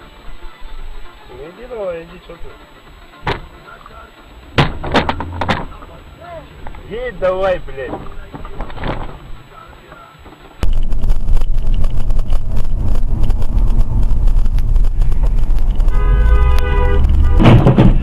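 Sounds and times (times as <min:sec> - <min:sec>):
car road and wind noise: 0:00.2 - 0:18.0
two-tone car horn: 0:15.8 - 0:18.0.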